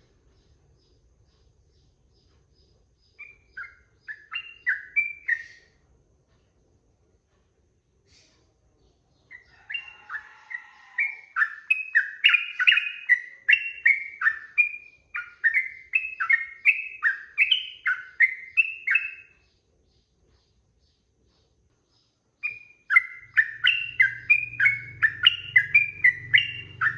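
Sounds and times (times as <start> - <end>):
bulbul singing whistled notes: 3.2 - 5.8, 11.0 - 19.4, 22.4 - 26.9.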